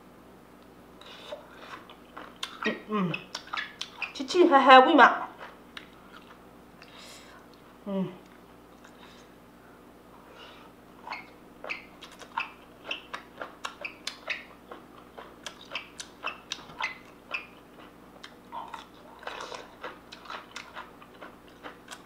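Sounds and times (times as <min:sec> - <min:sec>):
person chewing crunchy food: 0:01.0 - 0:04.2, 0:05.3 - 0:07.6, 0:10.5 - 0:22.0.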